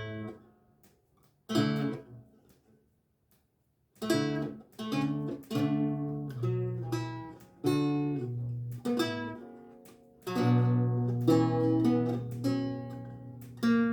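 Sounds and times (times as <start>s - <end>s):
lute plucked slowly: 4.0s - 13.9s.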